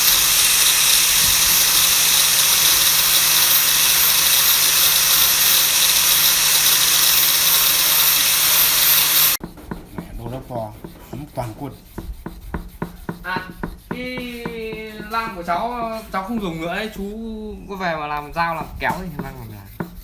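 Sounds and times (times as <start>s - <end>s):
electric power tool running: 0.0s - 9.4s.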